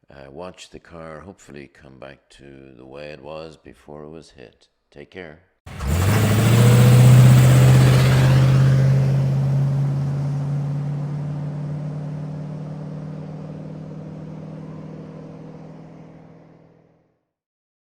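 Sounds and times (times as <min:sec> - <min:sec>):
car engine running: 0:05.7 - 0:16.9.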